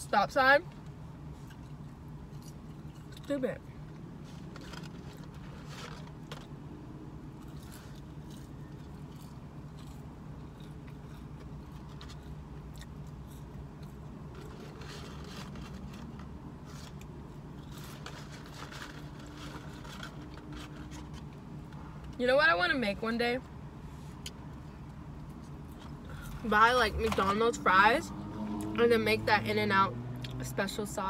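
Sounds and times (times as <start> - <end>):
steady low hum: 0.0 - 31.0
person chewing fries: 1.3 - 3.3, 7.3 - 21.3.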